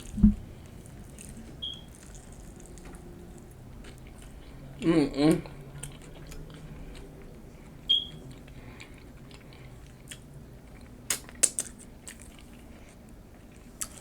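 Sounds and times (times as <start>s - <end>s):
person chewing: 0.0s - 14.0s
crisp chip crunches: 0.8s - 3.0s.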